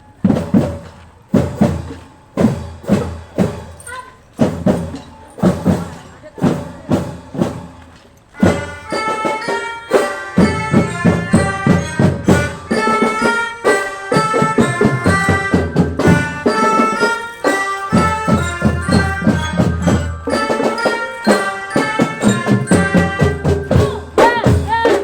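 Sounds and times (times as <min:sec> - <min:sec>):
drum band playing a march: 0:00.0 - 0:25.0.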